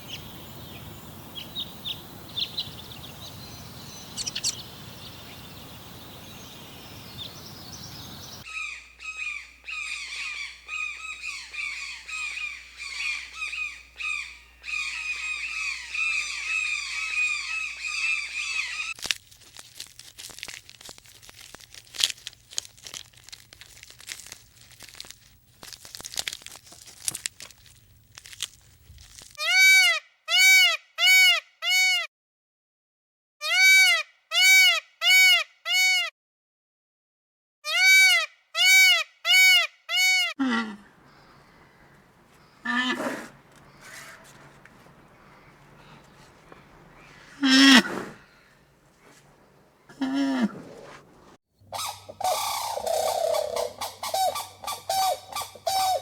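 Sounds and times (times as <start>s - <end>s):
birds chirping: 0.0s - 19.0s, 40.8s - 56.0s
faint clicks and rustles: 19.0s - 29.4s, 40.9s - 51.4s
loud animal call: 40.4s - 56.0s.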